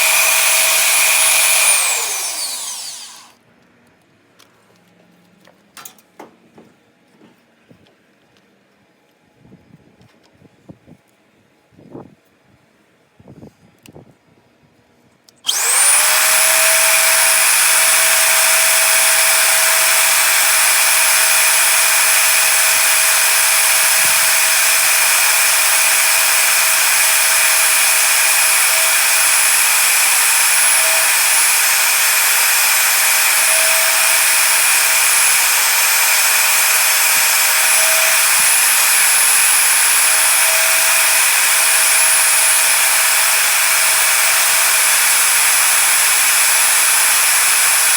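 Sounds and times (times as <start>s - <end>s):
electric power tool motor whine: 0.0s - 3.4s, 15.4s - 47.9s.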